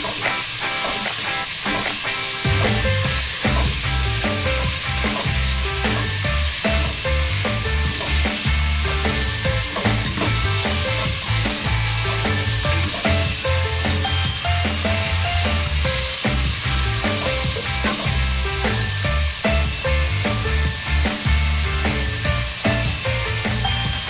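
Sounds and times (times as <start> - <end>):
onions sizzling in oil: 0.0 - 24.0
background music with bass line: 2.4 - 24.0.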